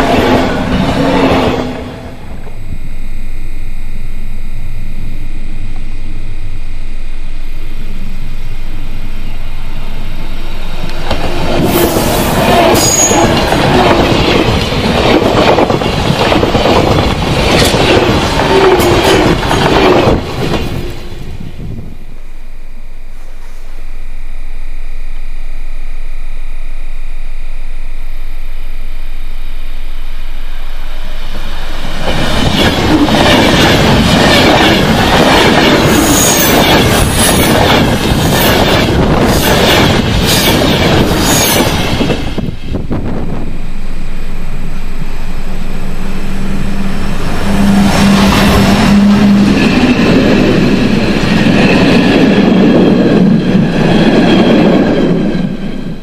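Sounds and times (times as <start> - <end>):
train rushing and rail noise: 0.0 - 2.7, 7.9 - 22.1, 30.4 - 56.0
steady hum: 0.0 - 53.8.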